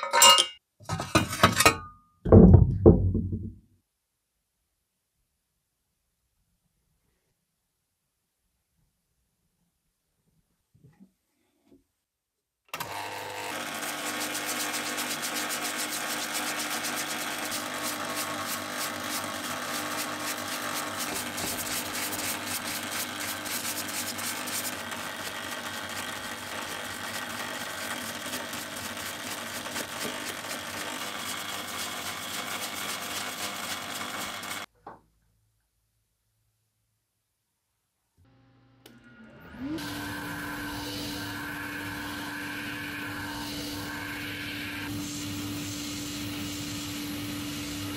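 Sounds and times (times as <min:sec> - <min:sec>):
power tool buzzing: 0:12.8 - 0:34.7, 0:38.3 - 0:47.9.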